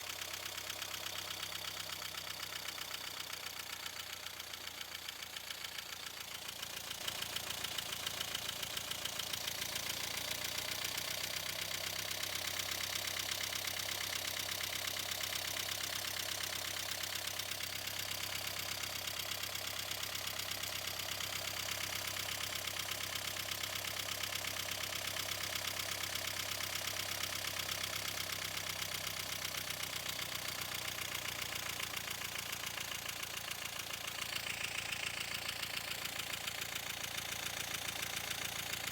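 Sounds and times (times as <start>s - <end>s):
diesel engine idling unevenly: 30.8s - 38.9s.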